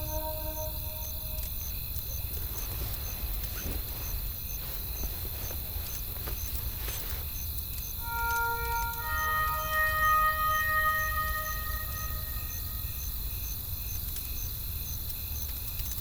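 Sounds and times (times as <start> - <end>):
faint high chirp: 0.0 - 1.5, 8.0 - 13.0.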